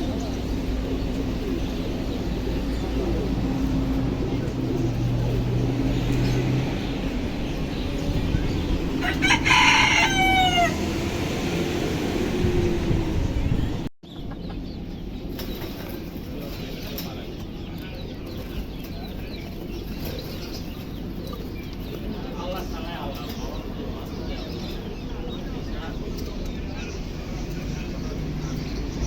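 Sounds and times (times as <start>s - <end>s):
rooster crowing: 9.0s - 11.4s.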